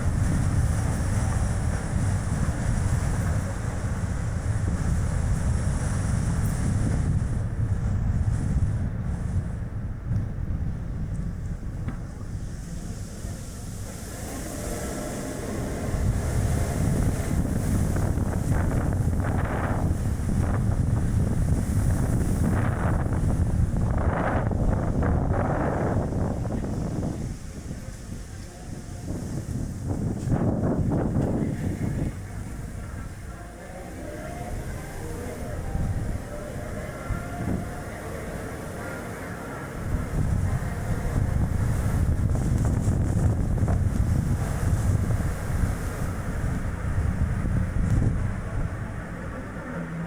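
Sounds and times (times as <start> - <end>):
wind buffeting microphone: 0.0 - 50.0
car road noise: 11.4 - 50.0.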